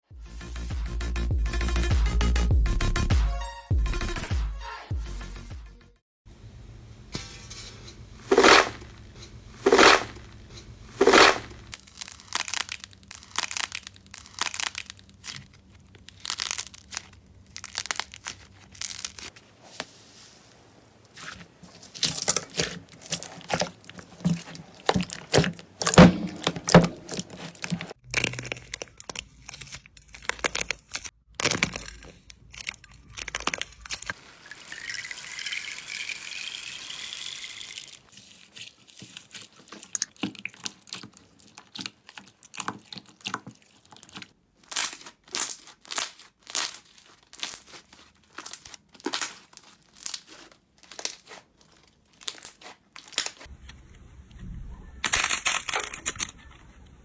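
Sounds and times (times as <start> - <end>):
slime crackling and popping: 11.0 - 19.4, 37.4 - 53.5.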